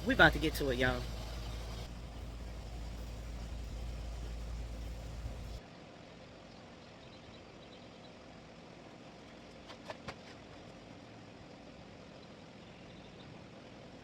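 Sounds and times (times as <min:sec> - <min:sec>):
motor humming: 0:00.0 - 0:05.6.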